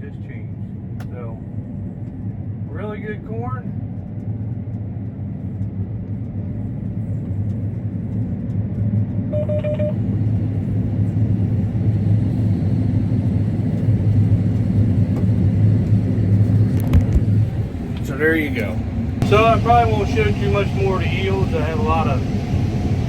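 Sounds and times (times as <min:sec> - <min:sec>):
combine harvester running: 0:03.8 - 0:23.0
short electronic tone: 0:09.4 - 0:10.0.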